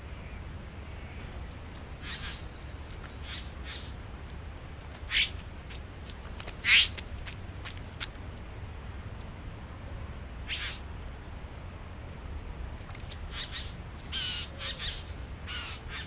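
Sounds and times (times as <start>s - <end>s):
bird rasping calls: 2.0s - 2.6s, 3.2s - 3.9s, 5.1s - 5.4s, 6.6s - 7.0s, 10.5s - 10.8s, 13.1s - 16.0s.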